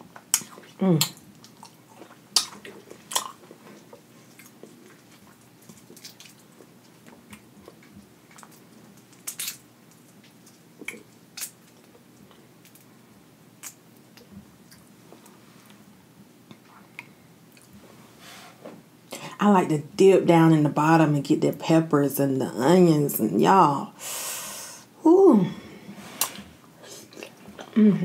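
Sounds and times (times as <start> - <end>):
person chewing food: 0.1 - 12.9, 13.6 - 15.9, 27.0 - 27.8.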